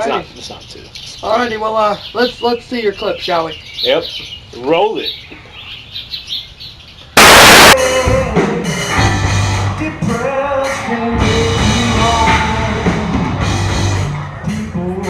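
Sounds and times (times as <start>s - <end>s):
loud burst of noise: 7.2s - 7.8s
drum kit: 7.2s - 9.7s.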